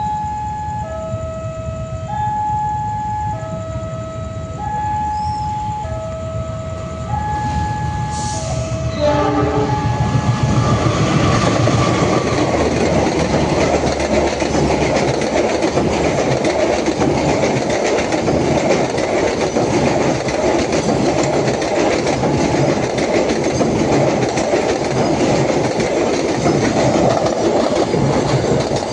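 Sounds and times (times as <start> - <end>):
two-tone warning signal: 0.0 - 11.4
train rumbling past: 0.0 - 28.9
wheels clattering over rail joints: 10.6 - 28.9.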